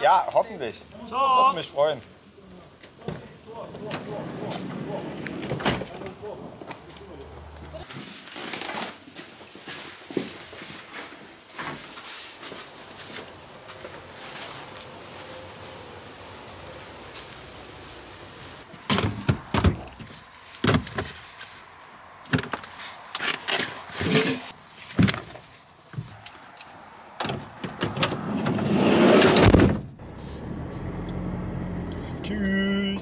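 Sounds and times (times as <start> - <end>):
keys jangling: 25.2 - 28.4
car engine starting and running: 27.2 - 33.0.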